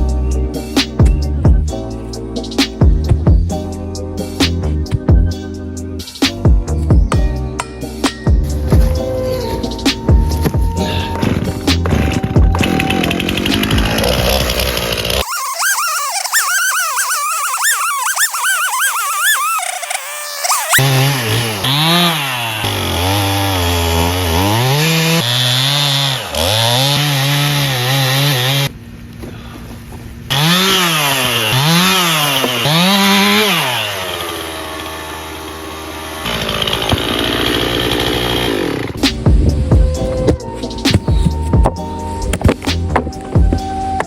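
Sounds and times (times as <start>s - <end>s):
chainsaw revving: 8.4s - 28.7s, 30.3s - 40.5s.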